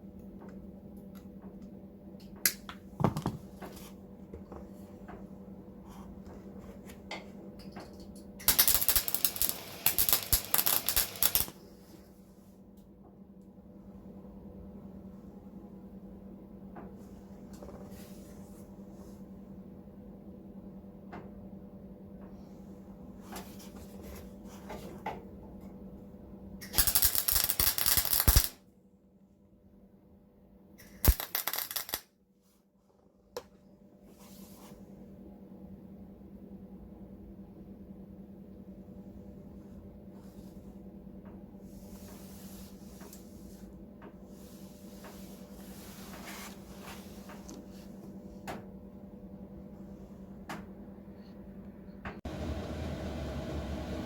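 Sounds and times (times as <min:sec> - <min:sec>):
welding arc crackling: 0:08.4 - 0:11.6, 0:26.8 - 0:28.5.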